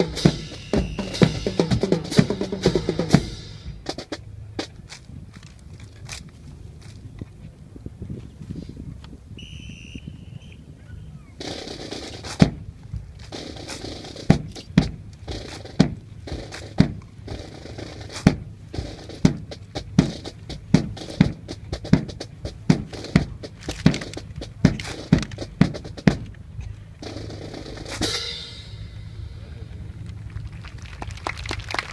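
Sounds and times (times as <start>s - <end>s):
rifles slapped and knocked in drill: 23.6s - 26.4s.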